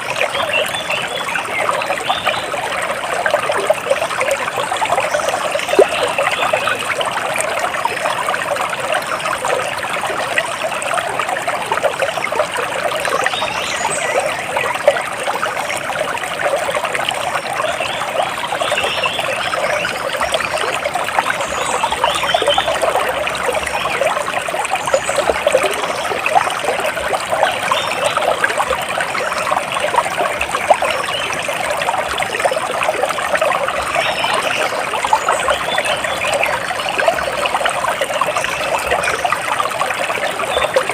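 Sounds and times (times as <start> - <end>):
running water trickling: 0.0 - 40.9.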